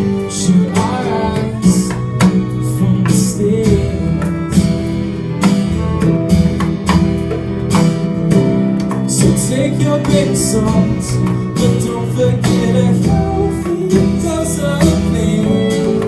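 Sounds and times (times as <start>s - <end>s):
drum beat: 0.0s - 16.0s
guitar playing: 0.0s - 16.0s.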